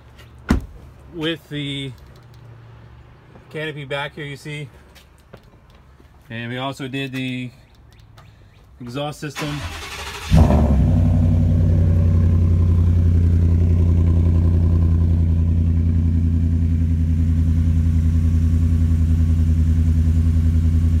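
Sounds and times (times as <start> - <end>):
pickup engine idling: 9.5 - 21.0.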